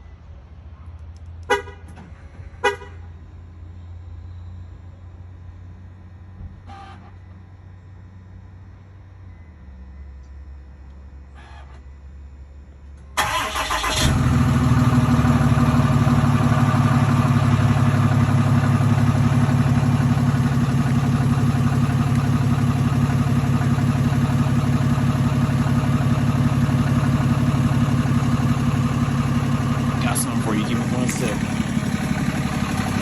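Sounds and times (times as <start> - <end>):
truck engine idling: 13.2 - 33.0.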